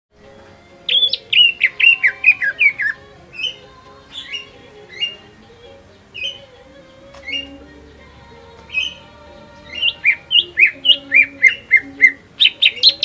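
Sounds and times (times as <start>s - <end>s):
bird singing whistled notes: 0.8s - 5.3s, 6.1s - 6.6s, 7.2s - 7.6s, 8.7s - 9.0s, 9.7s - 13.0s.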